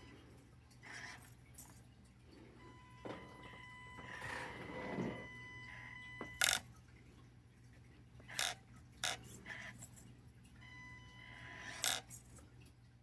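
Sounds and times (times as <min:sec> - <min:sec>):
rc car motor whine: 0:02.7 - 0:06.6.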